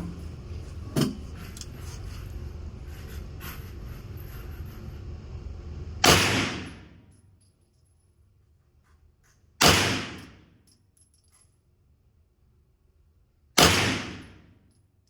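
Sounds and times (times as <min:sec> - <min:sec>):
gunshots with echo: 0:06.0 - 0:06.9, 0:09.6 - 0:10.4, 0:13.6 - 0:14.4.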